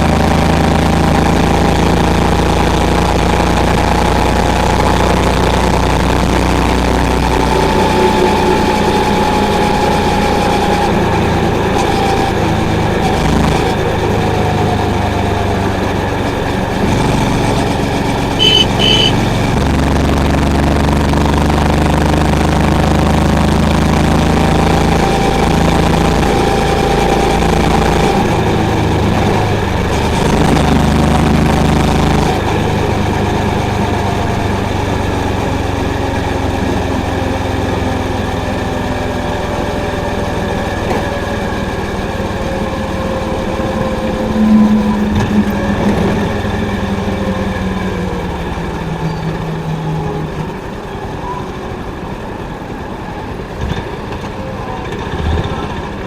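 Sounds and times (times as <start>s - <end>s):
motorcycle engine running: 10.9s - 49.8s
short high beeps: 18.4s - 19.3s.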